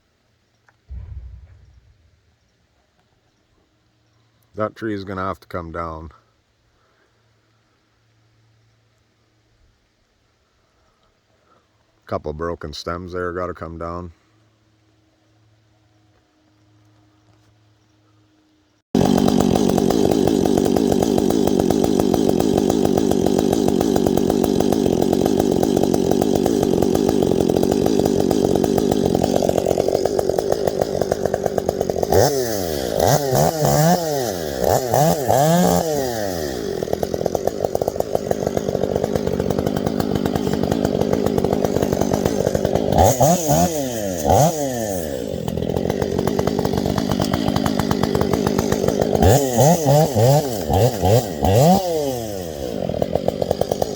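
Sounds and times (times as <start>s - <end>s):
chainsaw revving: 0.9s - 2.2s, 19.0s - 53.9s.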